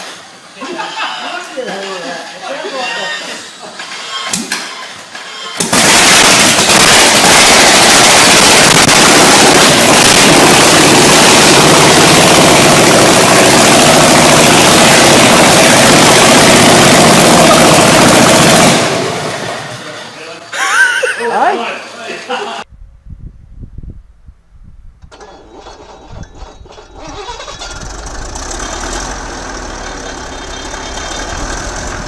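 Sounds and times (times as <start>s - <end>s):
powerful engine running: 5.8s - 20.0s, 27.0s - 32.0s.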